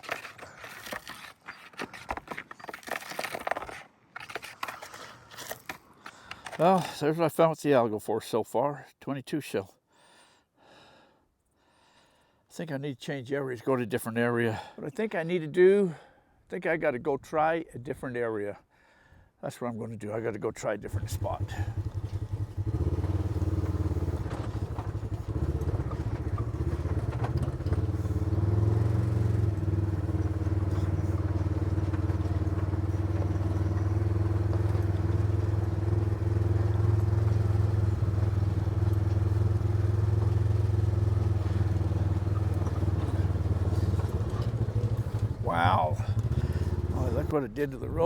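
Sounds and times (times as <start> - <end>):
vehicle engine droning: 20.9 - 48.0.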